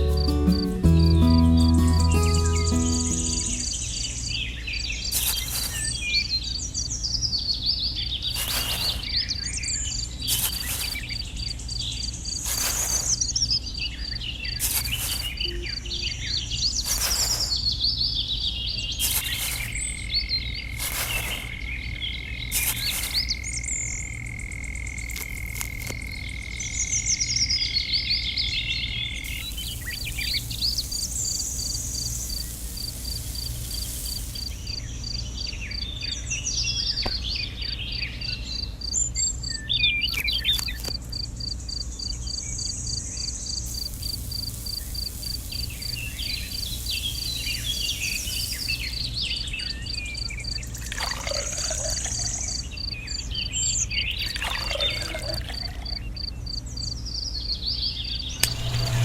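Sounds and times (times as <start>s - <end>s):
birds chirping: 5.0s - 24.0s, 43.6s - 56.3s
pulsing insect drone: 29.2s - 35.2s, 43.6s - 49.4s, 58.4s - 59.0s
steady high whine: 58.2s - 59.0s.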